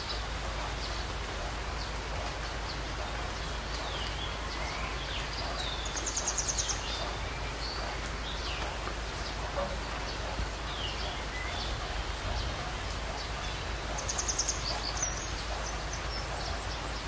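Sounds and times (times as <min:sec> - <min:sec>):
small birds chirping: 0:00.0 - 0:17.0
steady background hiss: 0:00.0 - 0:17.0.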